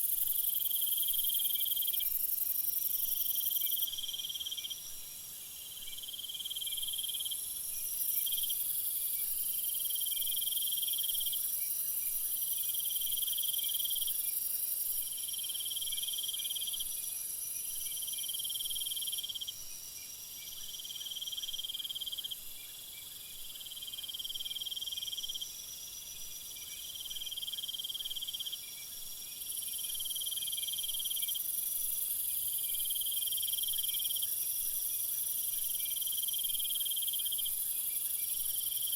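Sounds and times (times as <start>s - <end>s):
insects chirring: 0.0s - 22.8s.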